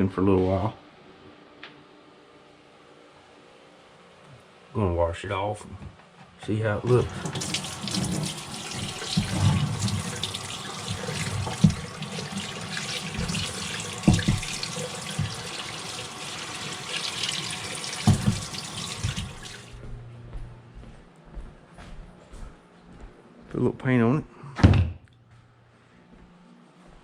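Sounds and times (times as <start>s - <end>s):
running water splashing: 6.8s - 19.8s.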